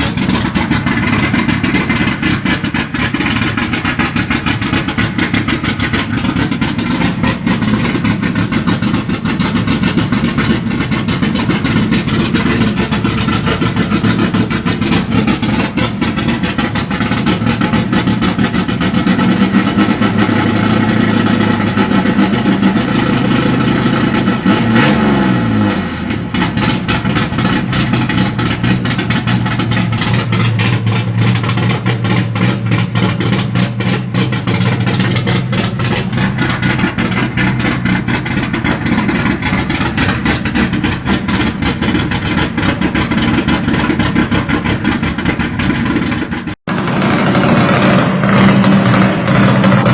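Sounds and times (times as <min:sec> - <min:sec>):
engine running with pulsing exhaust: 0:00.0 - 0:49.9.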